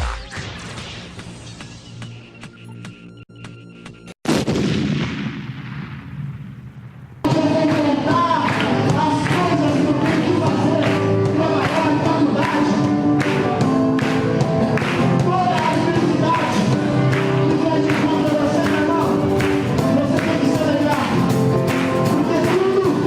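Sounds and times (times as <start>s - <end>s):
person singing: 7.3s - 13.6s, 14.9s - 23.0s
gospel band playing: 7.3s - 23.0s
steady drum beat: 7.3s - 23.0s.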